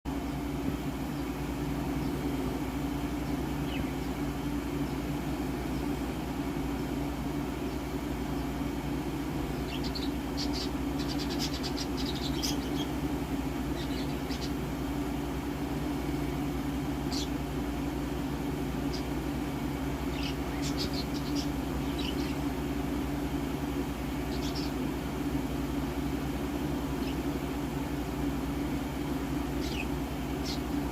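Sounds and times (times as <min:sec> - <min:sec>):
steady low hum: 0:00.1 - 0:30.9
budgerigars chirping: 0:09.6 - 0:12.9, 0:13.7 - 0:14.6, 0:17.1 - 0:17.4, 0:20.1 - 0:22.4, 0:24.3 - 0:24.8, 0:29.6 - 0:30.7.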